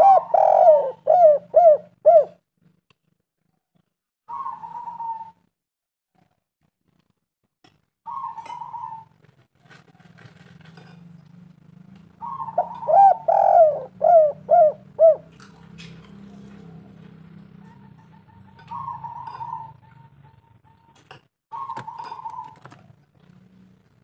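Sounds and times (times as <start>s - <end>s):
dove cooing: 0.0s - 2.4s, 4.3s - 5.4s, 8.1s - 10.4s, 12.1s - 23.4s.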